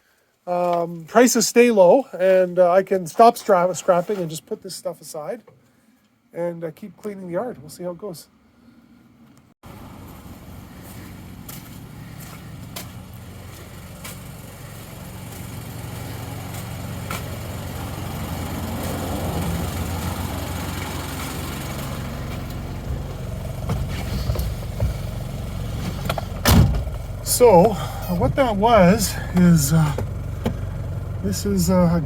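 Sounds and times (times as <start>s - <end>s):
vehicle engine running: 9.6s - 32.0s.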